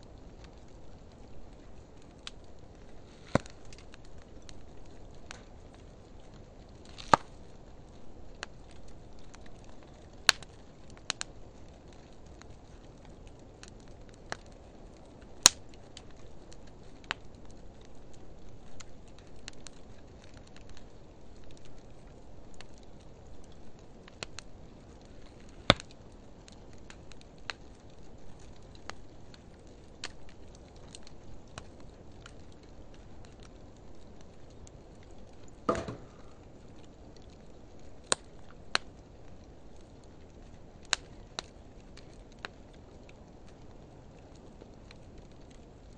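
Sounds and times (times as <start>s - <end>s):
fire burning with rushing flame: 0.0s - 45.9s
sharp crackling pops of wood: 1.6s - 7.5s, 15.3s - 16.2s, 23.4s - 26.0s, 35.0s - 39.0s.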